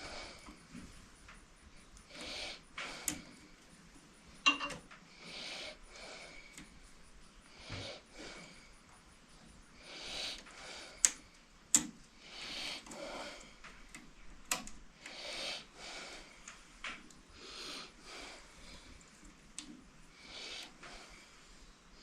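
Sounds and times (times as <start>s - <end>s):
person breathing softly: 0.0s - 3.7s, 5.1s - 11.4s, 12.1s - 14.2s, 14.9s - 22.0s
sharp metallic clicks: 10.1s - 13.0s.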